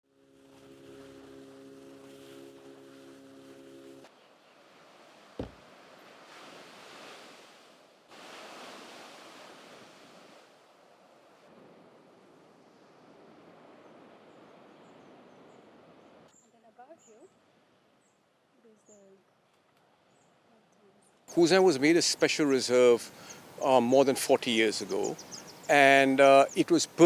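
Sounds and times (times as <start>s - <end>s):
faint sea surf: 0.0s - 19.6s, 20.3s - 27.0s
wind: 0.0s - 27.0s
short steady hum: 0.1s - 4.1s
sharp thump: 5.4s - 5.6s.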